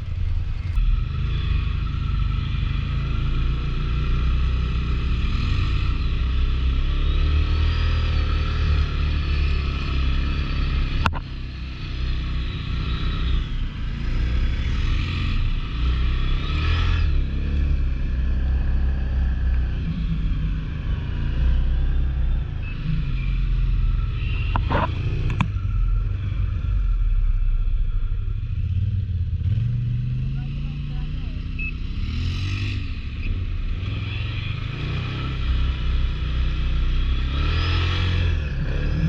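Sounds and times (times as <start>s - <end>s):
atv engine revving under load: 29.5s - 39.0s.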